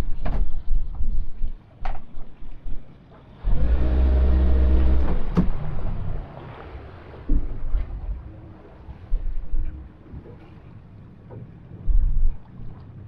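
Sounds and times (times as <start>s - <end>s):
steady mechanical hum: 0.1s - 13.0s
sharp knocks and low thumps: 7.2s - 10.4s, 11.2s - 13.0s.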